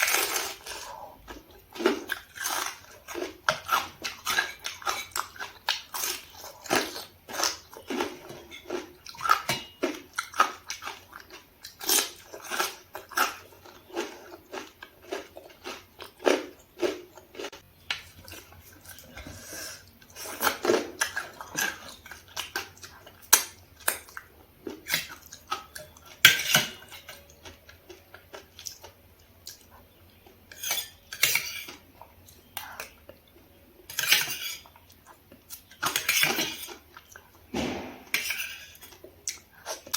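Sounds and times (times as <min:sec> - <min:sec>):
chewing and biting: 0:00.0 - 0:19.2
utensils clinking on dishes: 0:08.2 - 0:10.5, 0:24.8 - 0:27.6, 0:30.5 - 0:31.8, 0:33.9 - 0:34.7, 0:35.7 - 0:36.8, 0:38.0 - 0:39.0.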